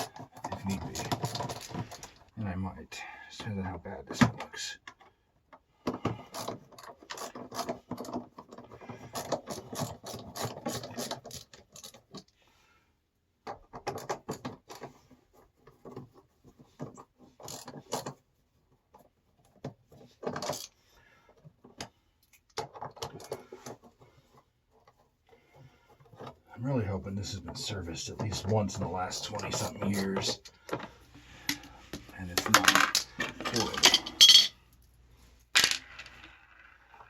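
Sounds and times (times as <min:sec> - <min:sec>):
hand tools clicking and scraping metal: 0:00.0 - 0:02.3, 0:04.9 - 0:12.3, 0:27.2 - 0:34.6.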